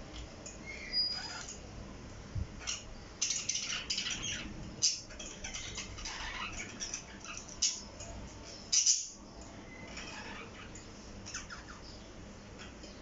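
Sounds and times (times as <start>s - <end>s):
parrot chirping: 0.6s - 1.6s, 2.6s - 7.9s, 8.6s - 12.0s.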